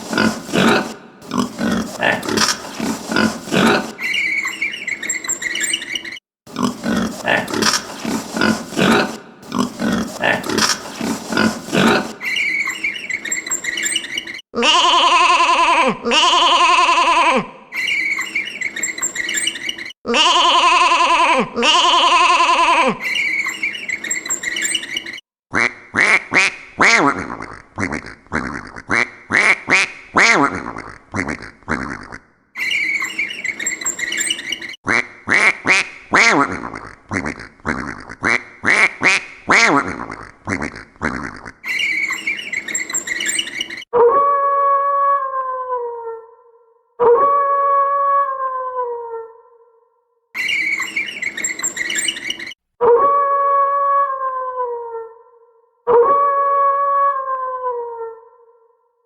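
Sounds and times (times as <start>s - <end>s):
duck quacking: 0.0s - 4.1s, 6.5s - 12.4s
long drawn-out animal calls: 0.0s - 25.2s, 50.4s - 58.7s.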